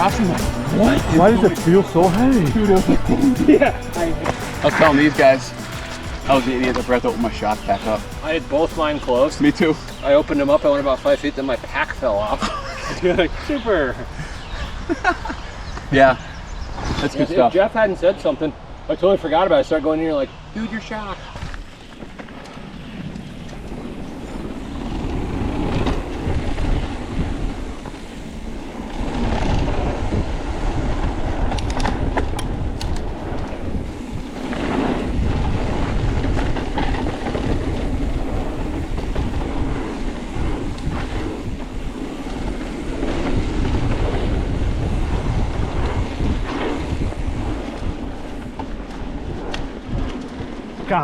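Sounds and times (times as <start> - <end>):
bike rattling: 0.0 - 17.1, 21.4 - 51.0
wind on microphone: 0.0 - 19.5, 21.2 - 51.0
bike tyres rumbling over dirt: 21.3 - 51.0.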